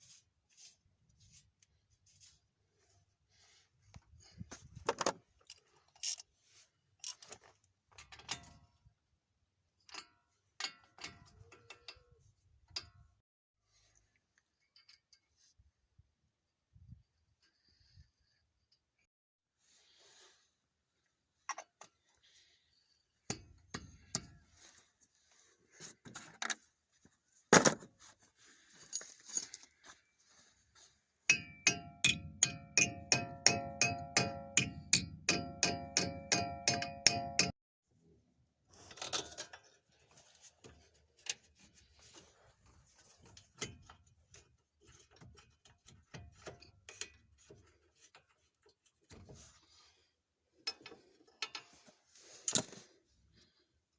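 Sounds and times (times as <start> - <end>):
metallic clinks and clanks: 14.4 - 15.4, 31.3 - 37.5
ringing metal strikes: 31.3 - 37.5.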